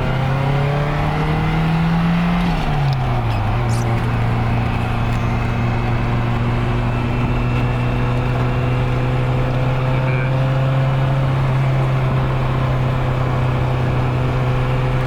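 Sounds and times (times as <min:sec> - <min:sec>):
car engine and exhaust running: 0:00.0 - 0:15.0.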